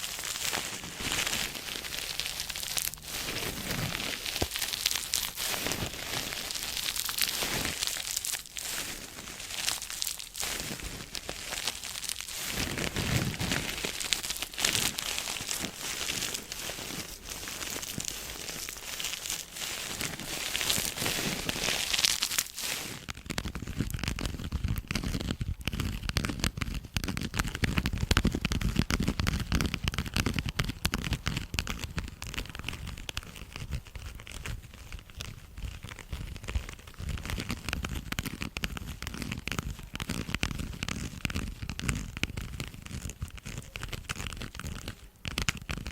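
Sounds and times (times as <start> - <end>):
dull low rustling: 0.0 - 23.1
close crinkling and crackling: 0.0 - 45.9.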